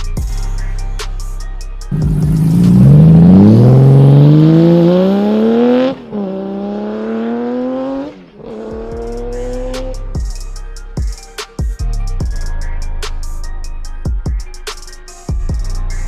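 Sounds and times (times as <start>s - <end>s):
motorcycle engine accelerating: 1.9s - 9.7s.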